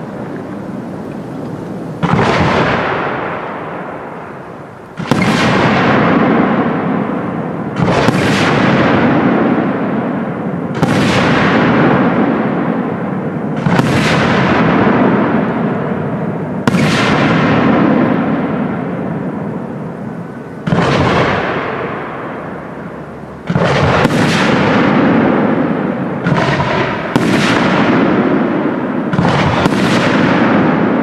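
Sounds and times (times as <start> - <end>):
long rolling echo: 0.0 - 31.0
firework shells bursting: 1.4 - 7.0.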